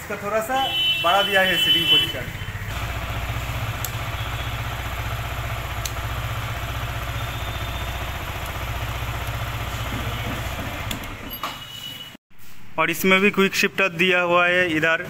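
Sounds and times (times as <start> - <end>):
motorcycle engine idling: 2.4 - 11.0.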